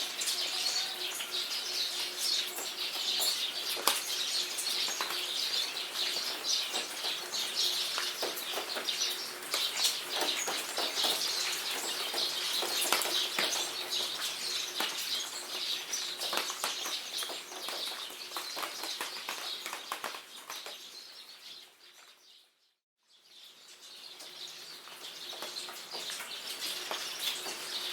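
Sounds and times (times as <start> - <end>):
rain pattering: 0.0 - 21.2, 24.0 - 27.9
birds calling: 0.0 - 22.1.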